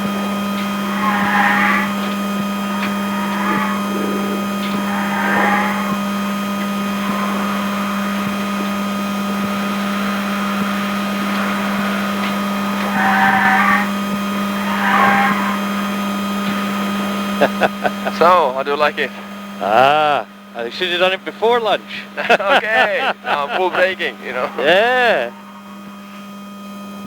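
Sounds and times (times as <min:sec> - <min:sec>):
short loud squeals: 0:00.0 - 0:16.9
electric motor hum with whines: 0:00.0 - 0:27.0.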